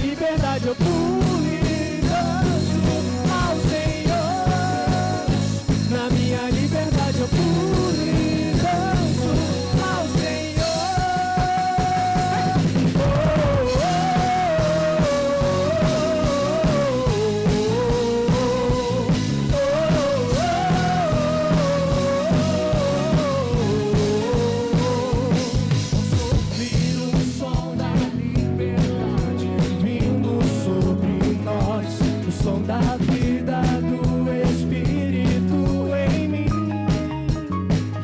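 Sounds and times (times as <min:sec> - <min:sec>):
gliding lead guitar melody: 0:00.0 - 0:26.8
rock band playing: 0:00.0 - 0:38.0.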